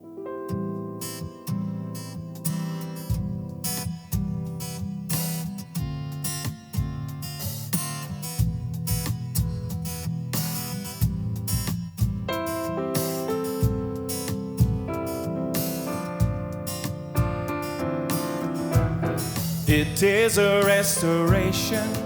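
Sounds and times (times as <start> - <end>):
acoustic guitar strumming: 0.5 - 22.0
steady low beat: 11.0 - 20.5, 21.2 - 22.0.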